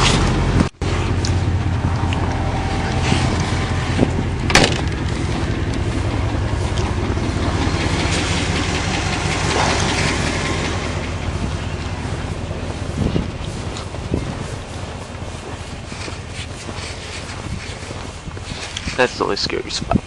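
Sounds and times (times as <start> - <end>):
car engine running: 0.0 - 19.6
road or wind noise hiss: 0.0 - 20.0.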